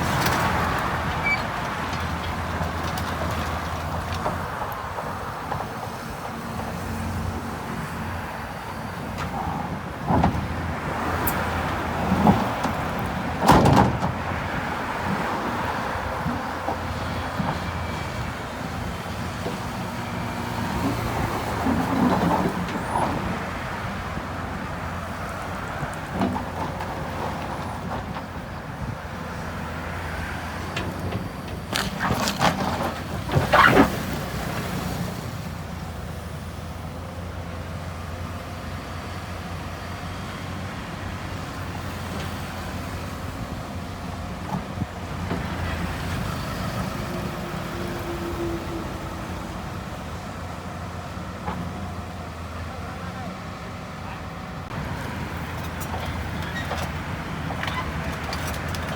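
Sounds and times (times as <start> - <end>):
clattering and scraping bursts: 30.6 - 34.5, 54.9 - 58.9.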